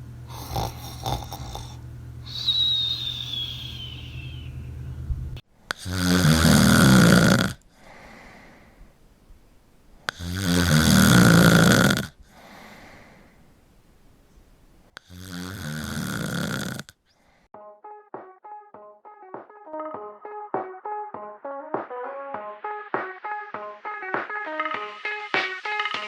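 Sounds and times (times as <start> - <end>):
person snoring: 0.3 - 4.4, 5.7 - 8.2, 10.1 - 13.0, 15.0 - 16.9
soft breaths: 0.3 - 15.2.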